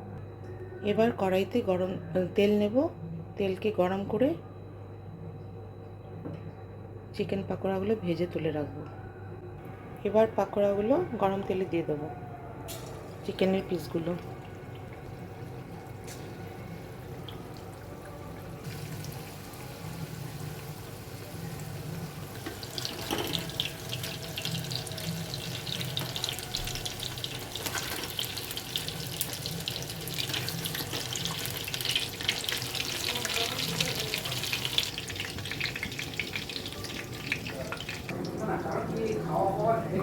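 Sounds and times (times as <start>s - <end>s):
chicken deep-frying in oil: 12.8s - 39.2s.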